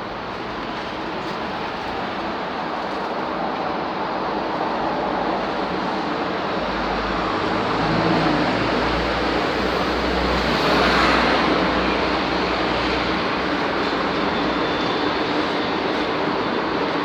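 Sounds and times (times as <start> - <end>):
road traffic: 6.0 - 17.0.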